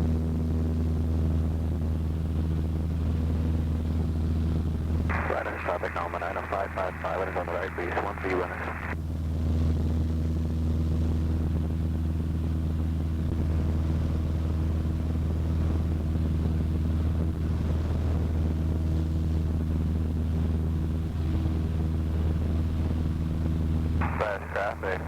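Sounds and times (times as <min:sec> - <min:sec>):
light aircraft engine droning: 0:00.0 - 0:25.0.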